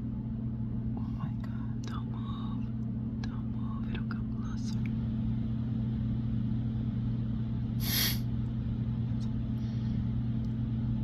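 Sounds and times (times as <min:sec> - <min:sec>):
low hum: 0:00.0 - 0:11.0
sharp hiss of air: 0:07.8 - 0:08.2.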